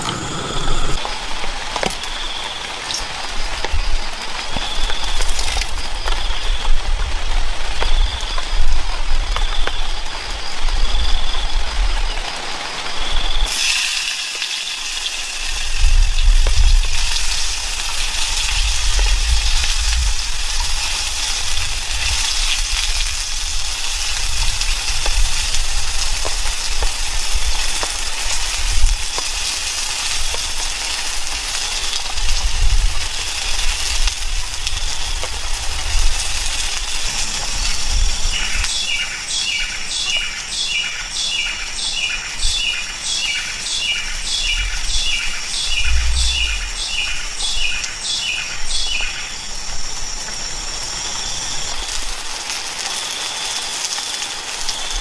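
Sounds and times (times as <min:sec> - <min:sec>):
steady outdoor hiss: 0:00.0 - 0:55.0
bird calling: 0:38.3 - 0:49.4
low rumbles: 0:44.6 - 0:47.4.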